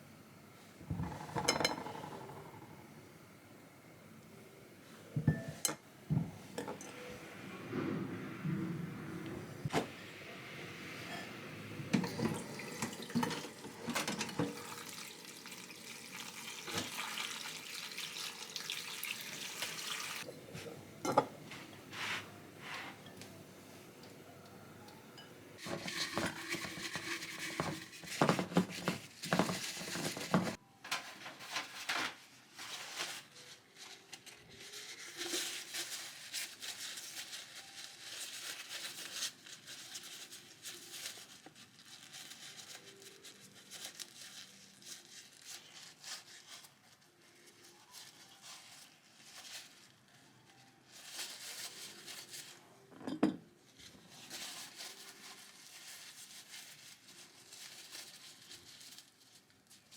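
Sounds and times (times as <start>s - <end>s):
kitchen clatter: 0.8s - 2.8s, 5.2s - 18.0s, 18.6s - 23.4s, 24.0s - 33.2s, 51.3s - 54.8s.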